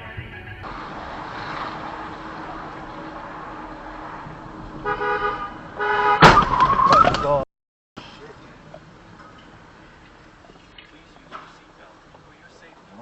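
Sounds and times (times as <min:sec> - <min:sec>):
car driving on road: 0:00.0 - 0:07.4, 0:08.0 - 0:13.0
car horn honking: 0:03.3 - 0:06.8.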